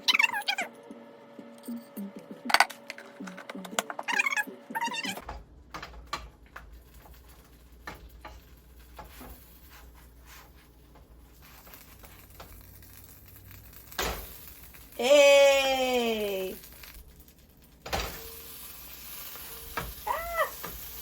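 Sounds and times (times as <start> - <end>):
music: 0.0 - 5.4.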